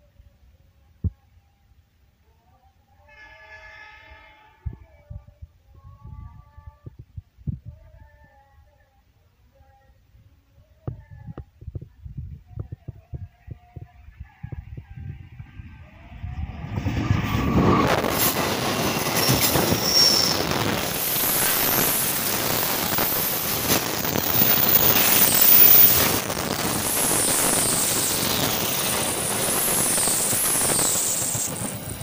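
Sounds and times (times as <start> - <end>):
wheels squealing on rails: 3.1 - 4.7, 15.4 - 32.0
train passing at speed: 15.0 - 32.0.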